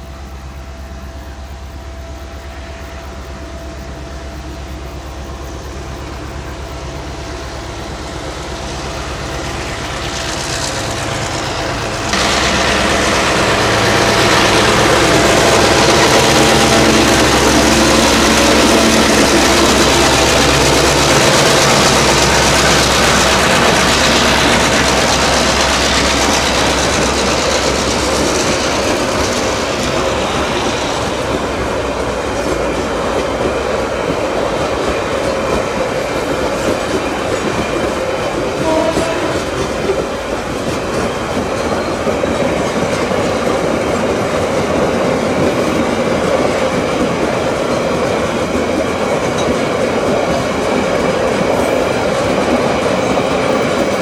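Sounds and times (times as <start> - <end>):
diesel locomotive engine: 0.0 - 54.0.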